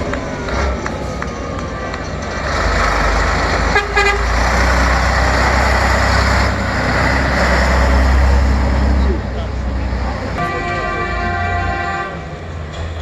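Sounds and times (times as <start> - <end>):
truck engine running loud: 0.0 - 13.0
horn toot: 3.7 - 4.9, 10.4 - 12.4.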